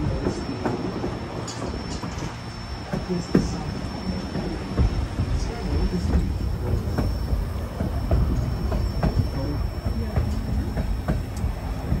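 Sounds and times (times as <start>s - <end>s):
railway car rumbling on track: 0.0s - 12.0s
wheels knocking and clacking: 4.2s - 12.0s.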